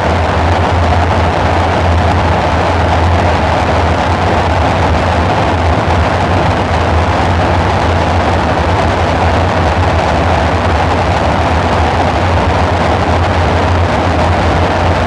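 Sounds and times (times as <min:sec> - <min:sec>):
deep synthesizer drone: 0:00.0 - 0:15.0.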